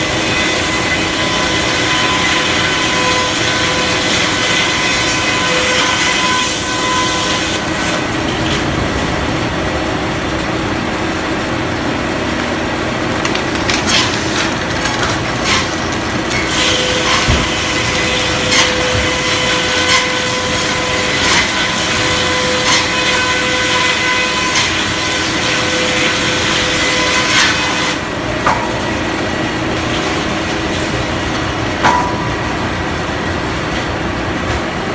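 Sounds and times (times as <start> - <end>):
circular saw sawing wood: 0.0 - 8.1, 13.2 - 28.6.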